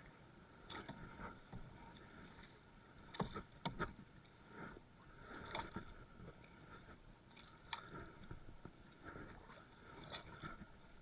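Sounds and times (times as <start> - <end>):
knocks and scrapes on wooden hull: 3.1 - 4.8.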